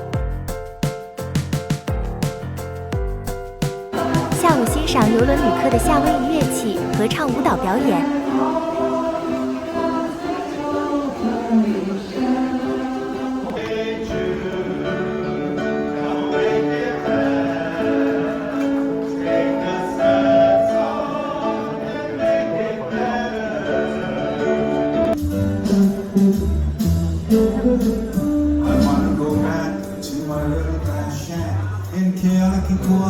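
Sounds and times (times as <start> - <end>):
group singing with plucked strings: 4.0 - 25.2, 28.6 - 31.7.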